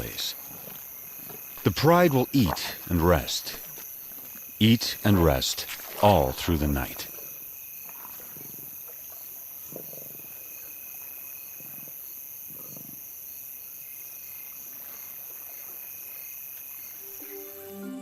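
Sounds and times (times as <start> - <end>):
night insects chirring: 0.0 - 18.0.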